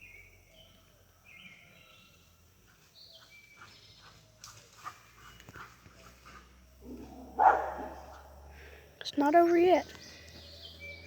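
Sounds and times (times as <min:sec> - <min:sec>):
faint bird chirps: 0:00.0 - 0:04.4, 0:09.2 - 0:11.0.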